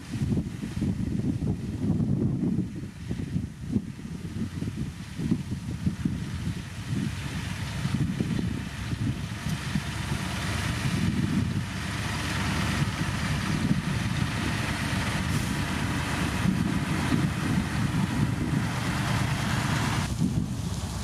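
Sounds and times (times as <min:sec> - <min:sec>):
diesel engine rumbling: 0:00.0 - 0:21.0
wind buffeting microphone: 0:00.0 - 0:21.0.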